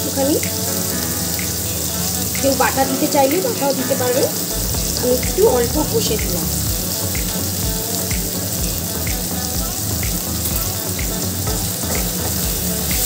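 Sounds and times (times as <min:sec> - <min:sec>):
food sizzling in hot oil: 0:00.0 - 0:13.0
music with a steady beat: 0:00.0 - 0:13.0.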